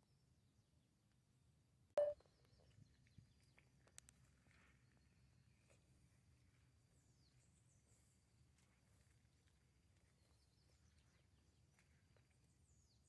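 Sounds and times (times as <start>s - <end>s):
faint outdoor ambience: 0.1s - 13.0s
faint bird chirps: 2.0s - 3.6s.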